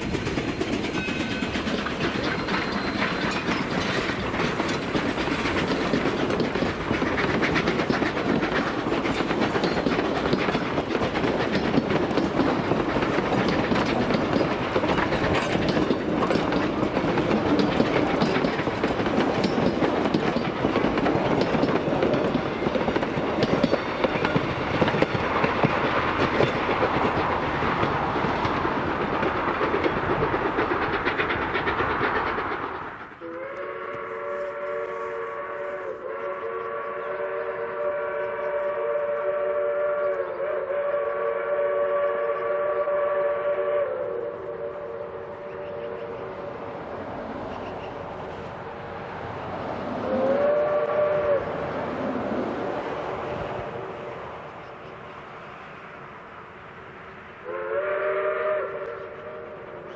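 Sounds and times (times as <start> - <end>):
train wheels clicking over rails: 0.0 - 59.9.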